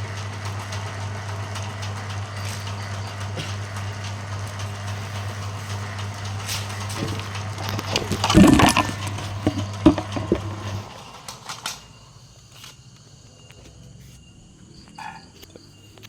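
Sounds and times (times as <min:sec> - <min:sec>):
machine motor hum: 0:00.0 - 0:11.2.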